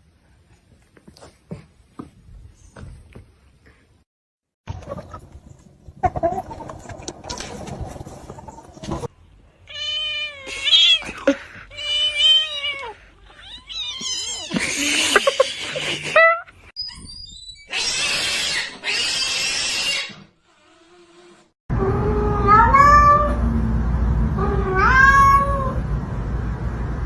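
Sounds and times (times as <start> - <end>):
cat meowing: 21.9 - 23.4, 24.4 - 25.8.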